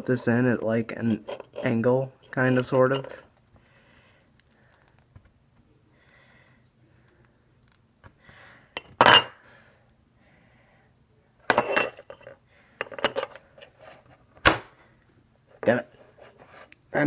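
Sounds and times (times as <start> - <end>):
small metal parts clattering: 11.5 - 13.7.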